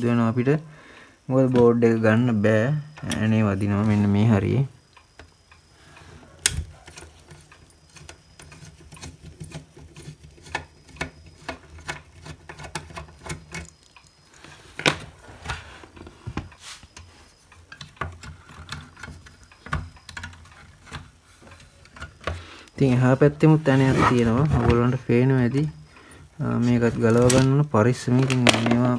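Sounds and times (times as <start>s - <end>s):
screwdriver clicking on metal: 26.7s - 28.9s.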